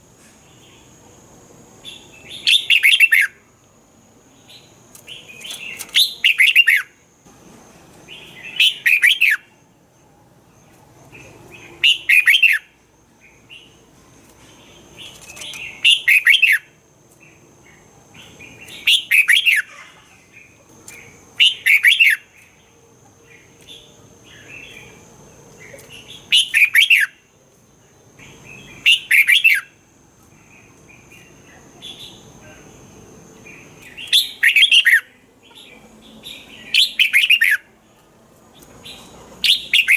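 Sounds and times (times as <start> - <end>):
bird whistled song phrases: 1.9 - 3.4, 5.5 - 7.0, 8.1 - 9.5, 11.8 - 12.7, 15.4 - 16.7, 18.6 - 19.7, 21.4 - 22.3, 26.2 - 27.2, 36.2 - 37.7, 38.9 - 39.9.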